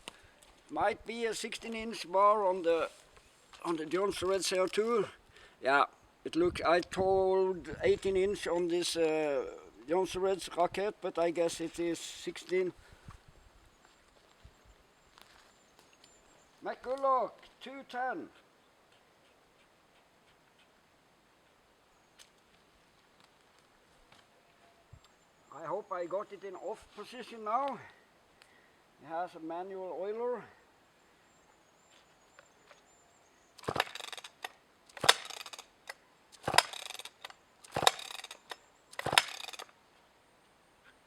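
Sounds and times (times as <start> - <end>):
chainsaw recoil starter pulls: 33.6 - 39.8.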